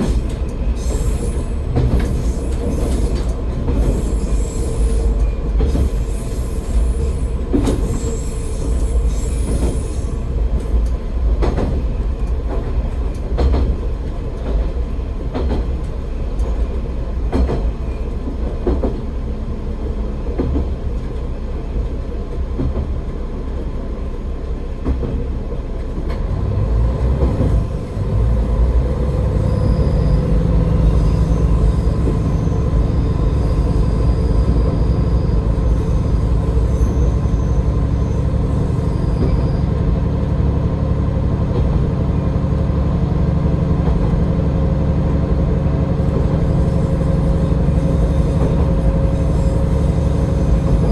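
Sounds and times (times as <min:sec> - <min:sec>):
wheels clacking over rail joints: 0:00.0 - 0:19.2
wheel squeal: 0:00.1 - 0:10.3, 0:28.8 - 0:39.9, 0:46.0 - 0:50.9.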